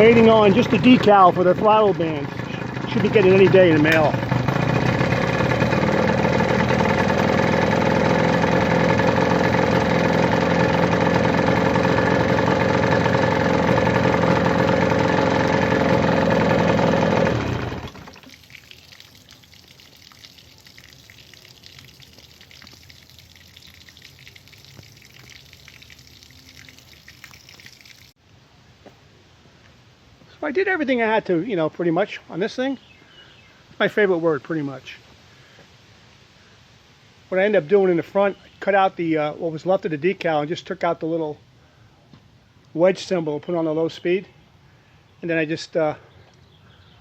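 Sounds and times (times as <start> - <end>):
outboard motor running: 0.0 - 28.1
faint background hiss: 28.2 - 47.0.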